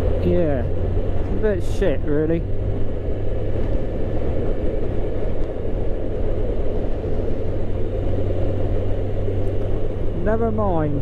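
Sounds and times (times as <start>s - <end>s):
wind noise: 0.0s - 11.0s.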